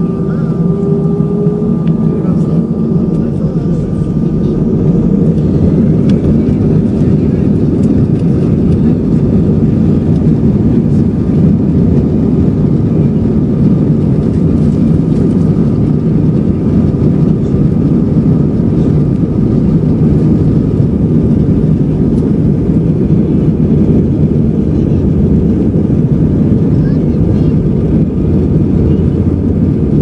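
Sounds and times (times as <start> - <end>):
faint high whine: 0.0 - 8.3
jet engines rumbling: 0.0 - 30.0.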